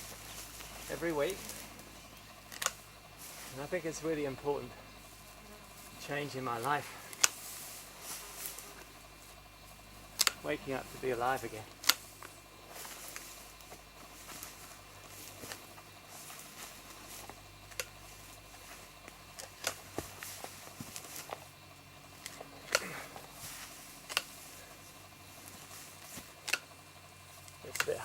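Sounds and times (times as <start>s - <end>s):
branches snapping while pruned: 0.0s - 2.8s, 7.1s - 7.4s, 10.1s - 10.5s, 11.5s - 21.5s, 22.2s - 24.4s, 25.4s - 26.7s, 27.4s - 28.0s
faint hum: 0.0s - 28.0s.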